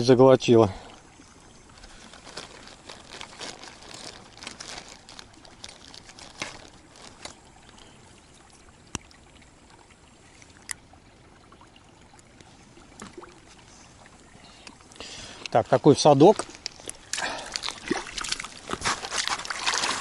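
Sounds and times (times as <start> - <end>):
water trickling and dripping: 0.0 - 20.0
crackles and rustles: 1.7 - 7.8, 15.4 - 20.0.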